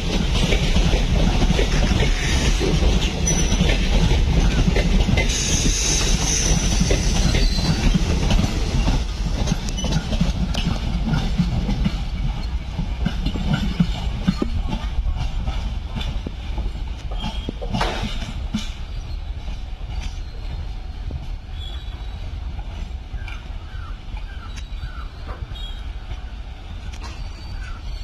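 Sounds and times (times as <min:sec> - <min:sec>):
wheels clattering over rail joints: 0:00.0 - 0:26.2
train coaches rumbling: 0:00.0 - 0:28.0
high wheel squeals: 0:03.2 - 0:03.6, 0:05.3 - 0:08.0.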